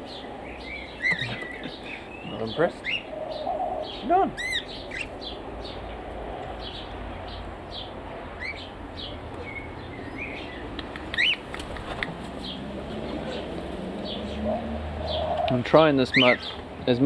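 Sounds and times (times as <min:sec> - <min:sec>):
birds chirping: 0:00.0 - 0:17.0
loud rising bird call: 0:00.6 - 0:05.8, 0:12.0 - 0:16.5.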